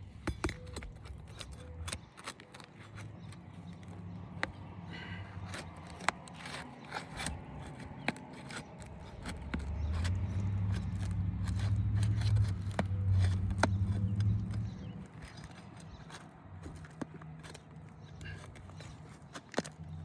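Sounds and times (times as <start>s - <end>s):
metal tool scraping and clicking: 0.1s - 4.6s, 5.3s - 20.0s
low rumble with steady hum: 8.7s - 18.8s.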